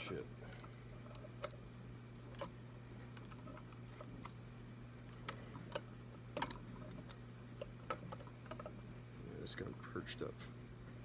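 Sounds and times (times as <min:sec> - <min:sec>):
low electrical hum: 0:00.0 - 0:11.0
small metal parts clicking: 0:06.4 - 0:07.2.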